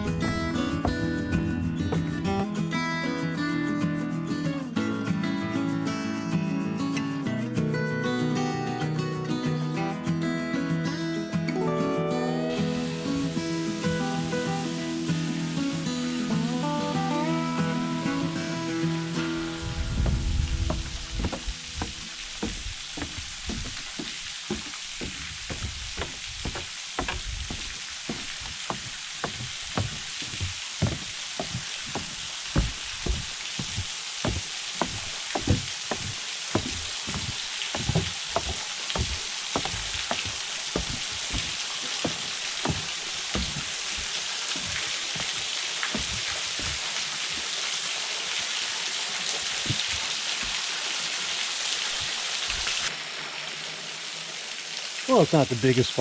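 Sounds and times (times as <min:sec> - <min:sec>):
footsteps on stairs: 0:00.0 - 0:02.3, 0:19.7 - 0:47.5, 0:49.5 - 0:50.6
small waterfall rushing: 0:11.2 - 0:56.0.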